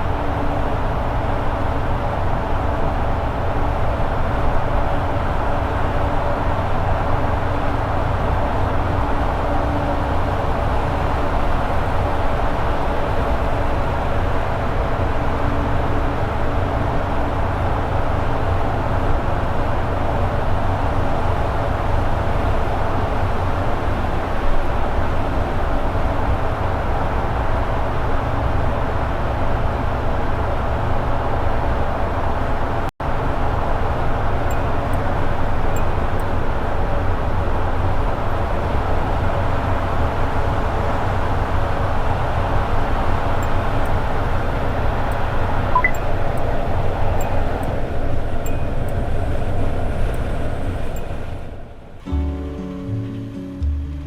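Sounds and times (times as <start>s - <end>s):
road noise: 0.0s - 54.0s.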